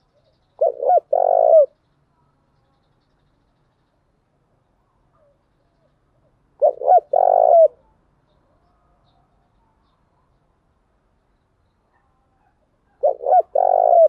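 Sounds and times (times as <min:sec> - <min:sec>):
dove cooing: 0:00.6 - 0:01.8, 0:06.6 - 0:07.8, 0:12.9 - 0:14.0.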